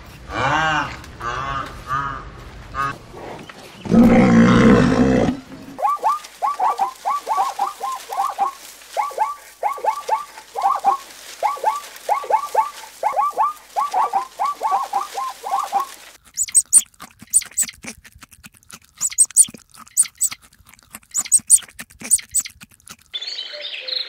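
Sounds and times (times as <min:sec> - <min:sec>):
birds chirping: 0:03.2 - 0:17.8, 0:19.0 - 0:20.4, 0:21.1 - 0:22.6
loud low animal call: 0:03.8 - 0:05.5.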